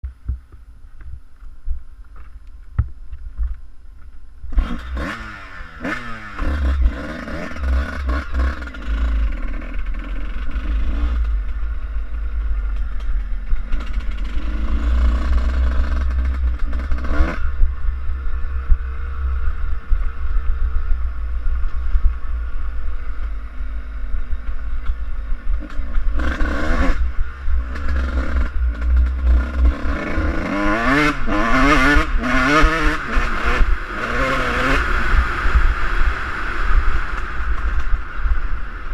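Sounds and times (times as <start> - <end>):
heavy low rumble: 0.0 - 38.9
motocross bike engine revving: 4.5 - 22.8, 25.3 - 38.0.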